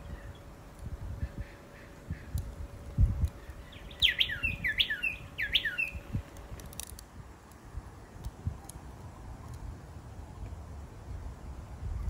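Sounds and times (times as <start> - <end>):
bird calling sharp descending notes: 3.6 - 6.1.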